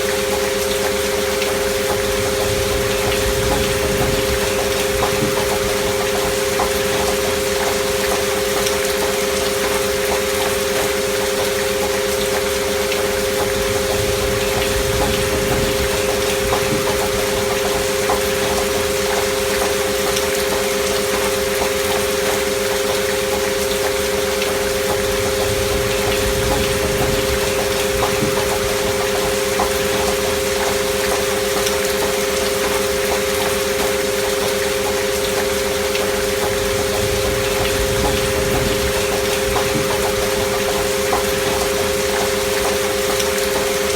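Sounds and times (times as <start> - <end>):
gentle rain: 0.0 - 43.9
steady sine tones: 0.3 - 8.6, 12.6 - 20.2, 35.4 - 43.0.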